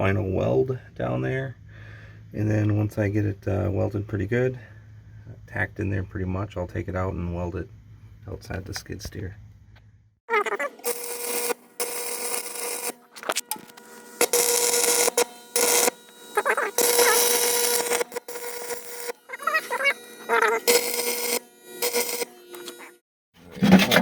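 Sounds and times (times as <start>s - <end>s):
arc welder crackling: 10.6s - 23.0s.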